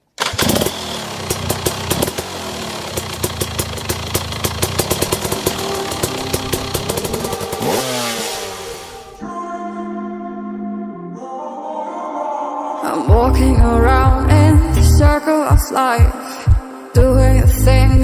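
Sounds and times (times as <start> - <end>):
dirt bike engine running: 0.2 - 9.1.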